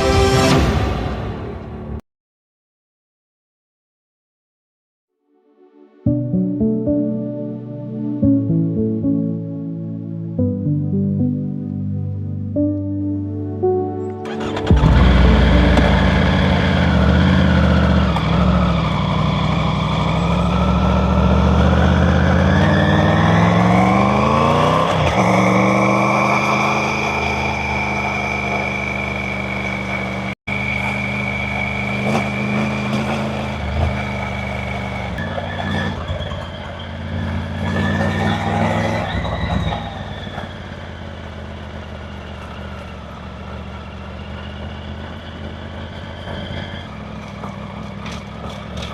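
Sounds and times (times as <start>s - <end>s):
motorcycle engine revving: 14.2s - 48.9s.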